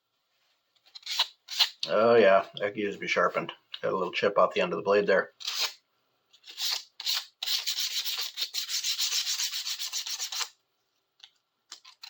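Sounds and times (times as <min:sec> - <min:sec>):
sandpaper rubbing on metal blade: 0:01.0 - 0:01.8, 0:05.4 - 0:05.8, 0:06.4 - 0:10.6.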